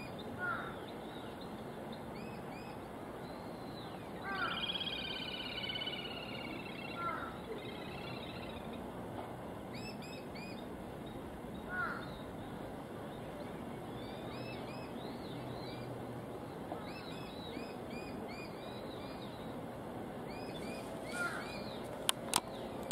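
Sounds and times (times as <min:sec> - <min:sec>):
birds chirping: 0:00.0 - 0:08.9, 0:09.7 - 0:19.6, 0:20.2 - 0:22.9
steady background noise: 0:00.0 - 0:22.9
harsh bird calls: 0:02.2 - 0:08.8, 0:11.6 - 0:12.5, 0:20.3 - 0:22.9.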